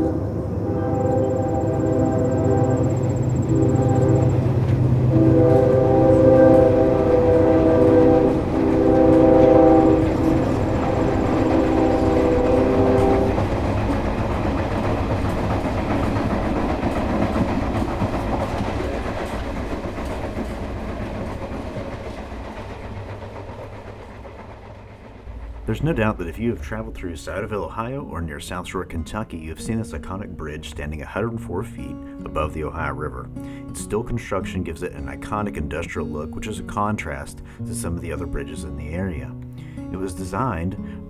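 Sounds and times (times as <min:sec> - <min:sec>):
train horn blasts: 0:00.0 - 0:20.6
train rumbling and clattering: 0:00.0 - 0:41.0.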